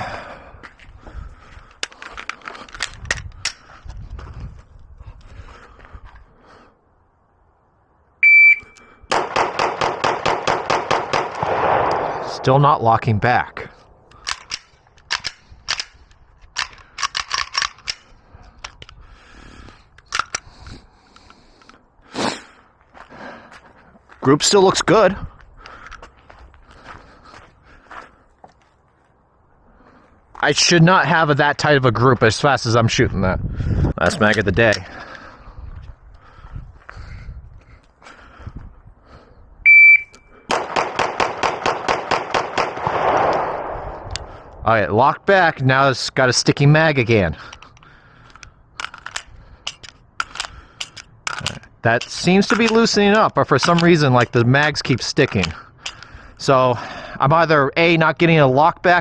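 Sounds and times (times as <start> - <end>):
shot timer beep: 8.2 - 8.8, 39.7 - 40.3
pistol shots: 9.1 - 12.7, 40.5 - 44.6.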